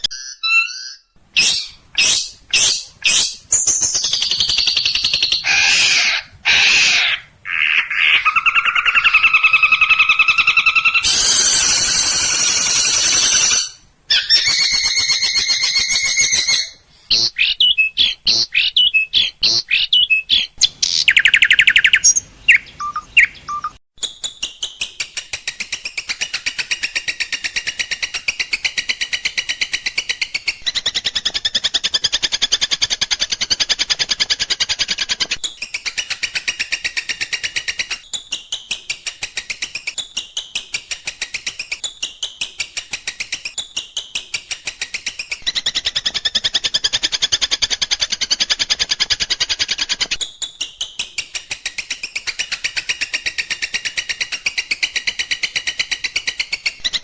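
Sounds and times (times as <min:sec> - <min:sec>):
songbird calls and trills: 0:00.1 - 0:23.8.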